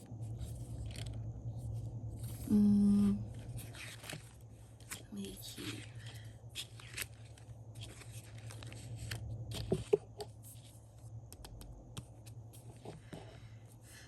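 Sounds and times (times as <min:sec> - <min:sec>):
steady low hum: 0:00.0 - 0:14.0
paper rustling: 0:00.2 - 0:11.1.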